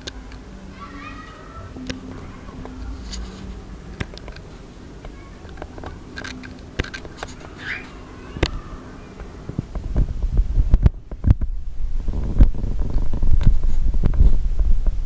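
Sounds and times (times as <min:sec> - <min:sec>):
cockatiel chirp: 0:07.6 - 0:08.0.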